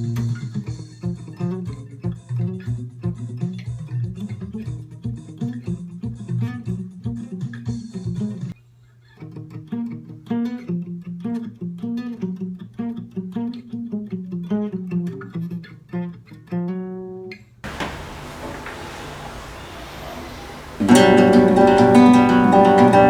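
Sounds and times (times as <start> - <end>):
steady hiss: 17.7 - 23.0
guitar picking a riff: 20.7 - 23.0.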